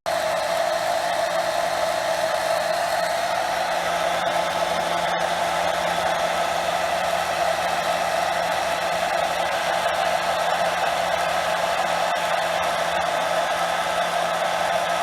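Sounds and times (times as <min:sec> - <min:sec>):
hair dryer blowing: 0:00.1 - 0:15.0.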